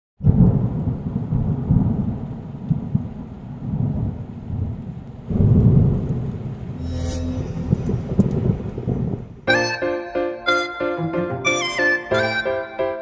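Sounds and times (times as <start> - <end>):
low rolling rumble: 0.3 - 9.5.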